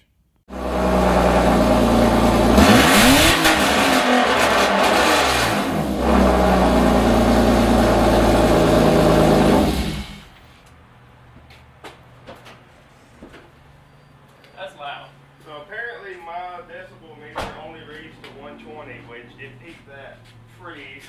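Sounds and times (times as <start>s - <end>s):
loud car engine revving: 0.5s - 10.3s.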